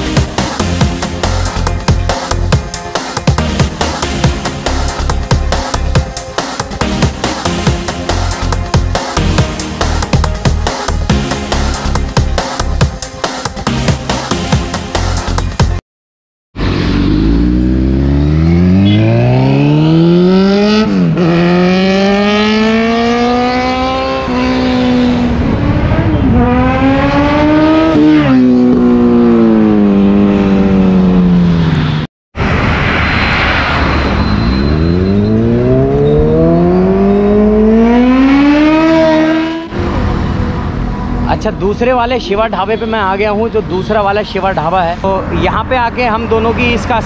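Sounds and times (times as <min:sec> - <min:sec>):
motorcycle engine accelerating: 0:16.6 - 0:32.0, 0:34.3 - 0:40.9.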